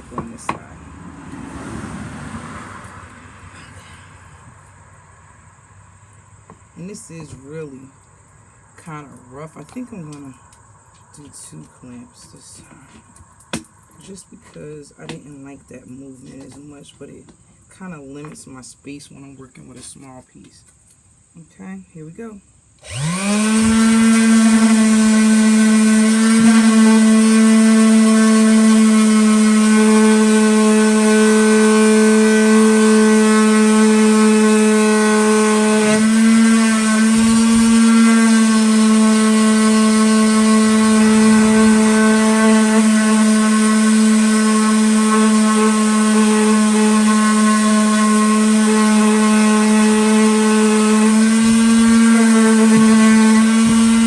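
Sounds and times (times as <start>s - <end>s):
electric sander sanding wood: 0.0s - 2.4s, 22.8s - 54.0s.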